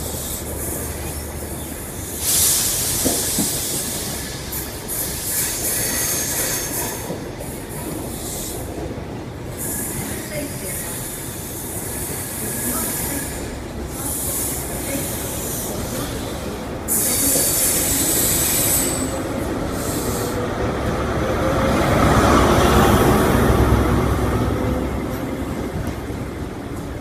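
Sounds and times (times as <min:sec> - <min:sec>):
train coaches rolling on rails: 0:00.0 - 0:27.0
wheel squeal and hiss: 0:00.1 - 0:08.5, 0:09.6 - 0:11.2, 0:11.8 - 0:20.4
diesel locomotive rumble: 0:11.8 - 0:27.0.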